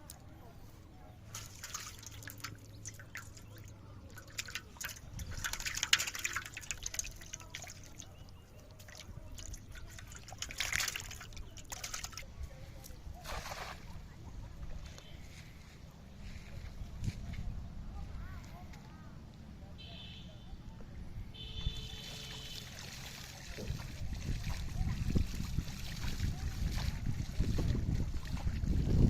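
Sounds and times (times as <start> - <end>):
water splashing and dripping: 1.2 - 14.0, 21.7 - 29.0.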